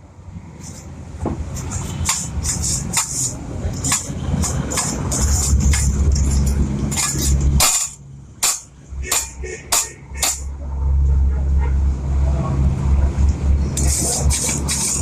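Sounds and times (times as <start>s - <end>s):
sharp metallic taps: 1.2s - 10.5s.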